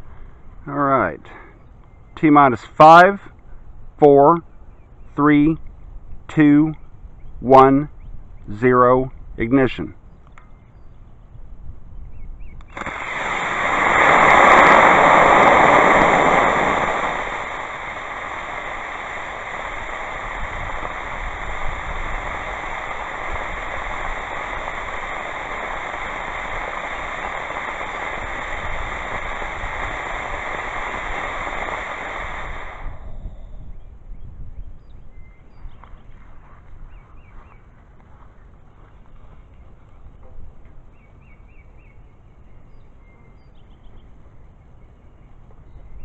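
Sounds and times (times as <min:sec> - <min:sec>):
rocket motor hissing: 0:12.7 - 0:33.6.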